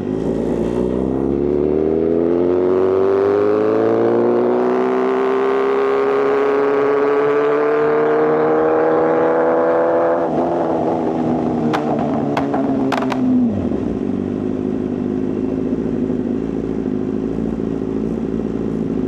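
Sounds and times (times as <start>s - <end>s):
motorcycle engine accelerating: 11.8s - 13.9s.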